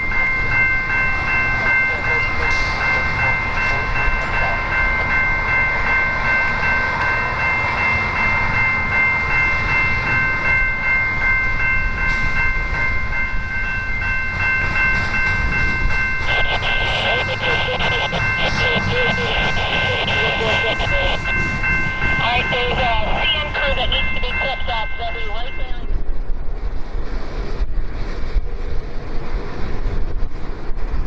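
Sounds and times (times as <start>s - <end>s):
steady high-pitched tones: 0.0s - 26.2s
train cars rolling on rails: 0.0s - 31.0s.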